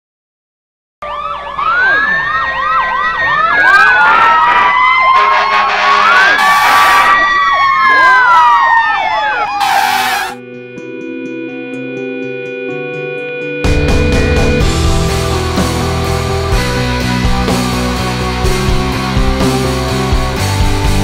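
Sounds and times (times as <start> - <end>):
fire engine sirens: 1.0 - 10.4.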